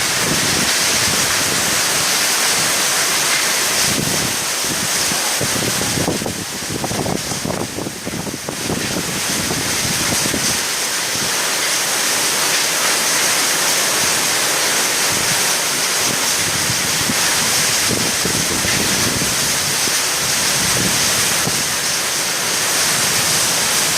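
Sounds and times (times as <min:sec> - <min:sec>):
wind gusts buffeting microphone: 0:00.0 - 0:02.7, 0:03.8 - 0:11.3, 0:15.1 - 0:21.9
storm wind and rain: 0:00.0 - 0:23.9.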